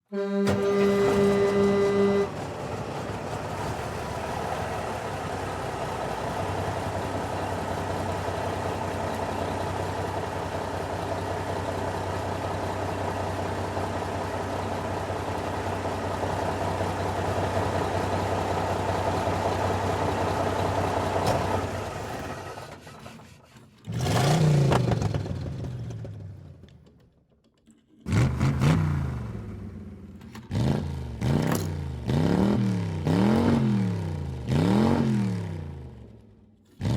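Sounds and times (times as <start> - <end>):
car engine running: 1.3 - 22.5
car engine revving: 23.9 - 26.2, 28.1 - 35.9.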